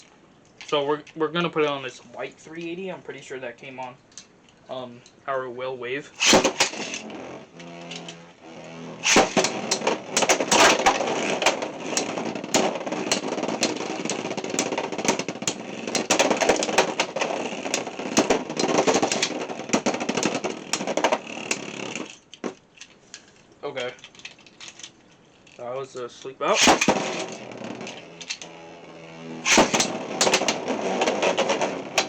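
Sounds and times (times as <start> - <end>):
spinning tops clacking in plastic stadium: 6.2 - 25.6, 26.5 - 32.0.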